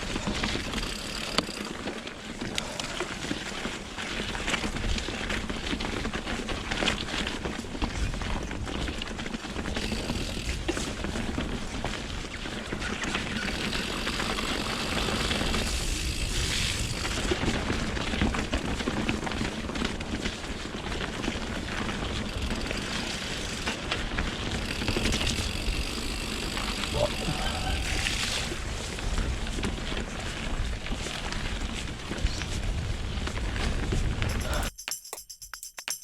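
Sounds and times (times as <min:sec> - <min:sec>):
bike tyres rolling: 0:00.0 - 0:34.3
bike rattles and clicks: 0:00.0 - 0:36.0
wind buffeting microphone: 0:26.9 - 0:34.6.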